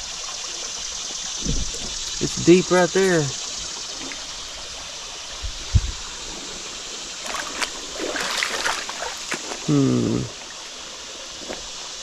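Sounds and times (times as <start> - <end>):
creek water running: 0.0 - 12.0
thump: 1.4 - 2.0
splashes and knocks: 7.2 - 9.7
short voiced hum: 9.7 - 10.3.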